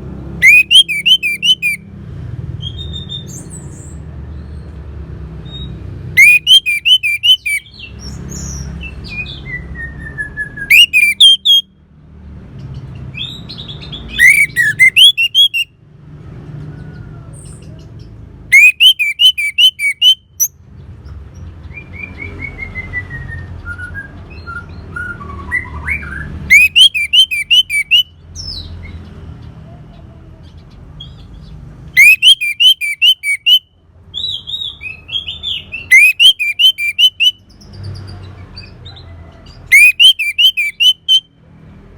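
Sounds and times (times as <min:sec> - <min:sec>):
thrush singing: 0:00.4 - 0:01.8, 0:06.2 - 0:07.6, 0:10.7 - 0:11.6, 0:14.0 - 0:15.7, 0:18.5 - 0:20.4, 0:26.5 - 0:28.0, 0:32.0 - 0:33.6, 0:35.6 - 0:37.4, 0:39.6 - 0:41.2.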